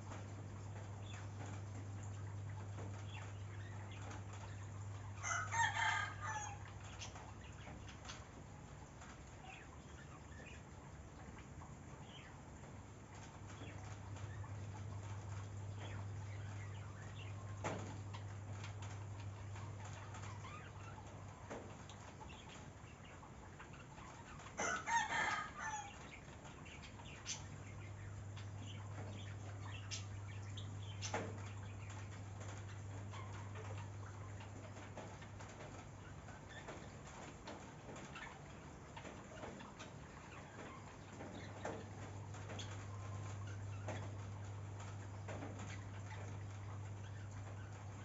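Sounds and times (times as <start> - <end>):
rooster crowing: 5.2 - 6.7, 24.6 - 26.0.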